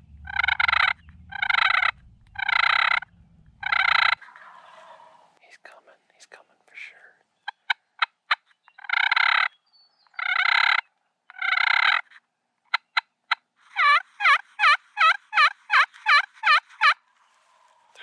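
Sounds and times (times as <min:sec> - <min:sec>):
turkey clucking: 0:00.0 - 0:05.3, 0:10.2 - 0:12.0, 0:12.7 - 0:18.0
turkey raspy calls: 0:00.0 - 0:05.4, 0:07.4 - 0:12.0, 0:12.7 - 0:18.0
turkey yelping: 0:00.2 - 0:05.3, 0:10.2 - 0:12.0, 0:13.7 - 0:18.0.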